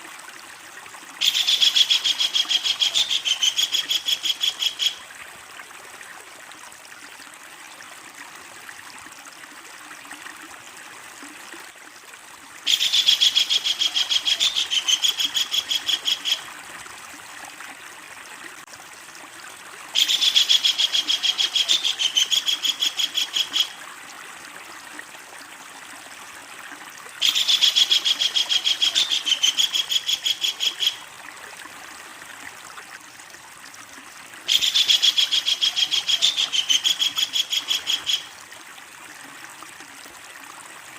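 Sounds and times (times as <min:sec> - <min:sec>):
kingfisher rattling call: 0:01.2 - 0:05.0, 0:12.7 - 0:16.4, 0:27.2 - 0:31.0, 0:34.5 - 0:38.3.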